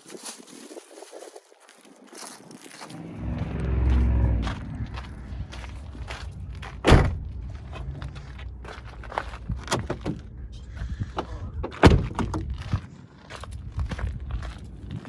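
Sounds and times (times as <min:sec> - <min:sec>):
low rumble: 0:02.5 - 0:12.7
loud thump: 0:03.0 - 0:08.0.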